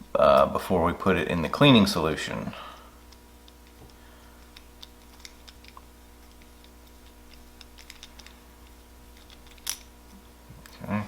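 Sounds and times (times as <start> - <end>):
steady low hum: 0.0 - 11.0
small tools clicking and tapping: 3.1 - 9.9.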